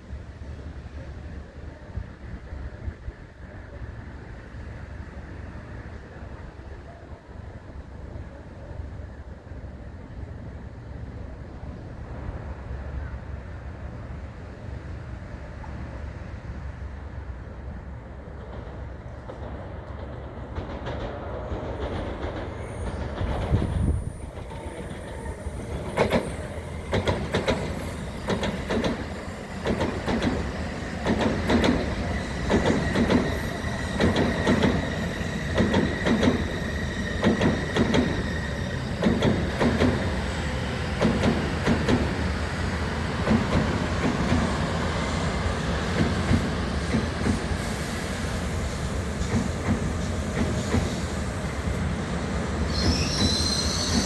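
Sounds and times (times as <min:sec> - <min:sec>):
train low rumble: 0:00.0 - 0:54.0
wheels clattering over track: 0:18.4 - 0:36.6.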